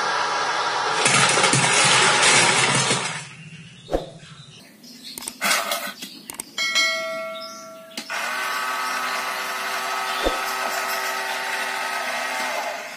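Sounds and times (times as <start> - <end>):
click: 6.3 - 6.5.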